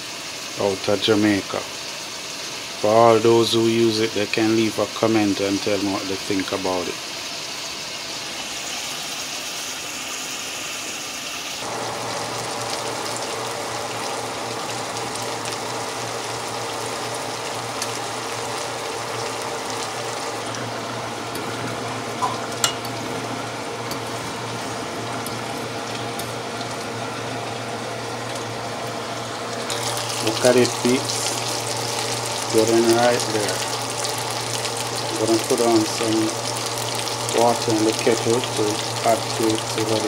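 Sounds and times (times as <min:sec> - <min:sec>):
chicken sizzling in oil: 0:00.0 - 0:40.0.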